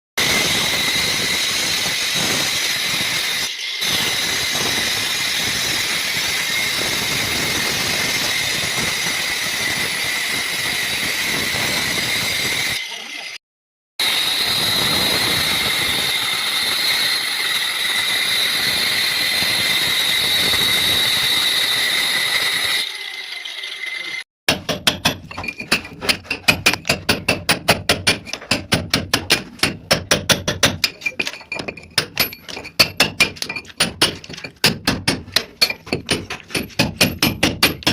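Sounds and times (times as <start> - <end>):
power cutter grinding wall: 0.2 - 13.4, 14.0 - 24.3
rapid hammer strikes: 24.5 - 37.9.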